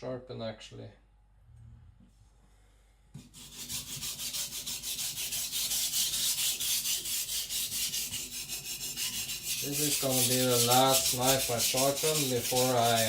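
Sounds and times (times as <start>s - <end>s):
knife rubbing on whetstone: 3.2s - 13.0s.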